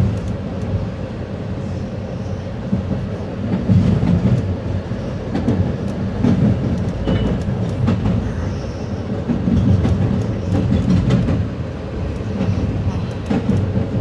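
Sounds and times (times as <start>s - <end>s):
train low rumble: 0.0s - 14.0s
wheels clacking over rail joints: 5.3s - 14.0s.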